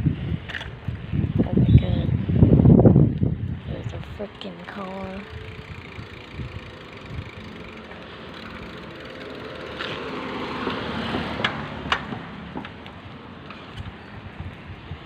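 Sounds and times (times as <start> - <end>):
car passing close by: 8.2 - 12.7.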